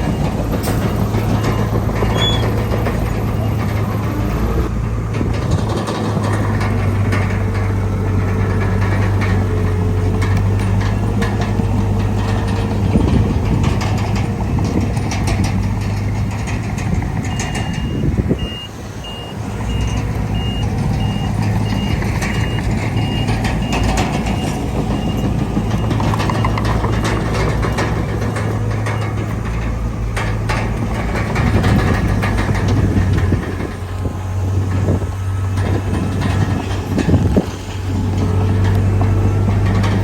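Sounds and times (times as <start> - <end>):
reversing alarm beeping: 0.0 - 3.7, 17.2 - 27.0
heavy diesel machinery running: 0.0 - 40.0
scattered knocks: 19.7 - 40.0.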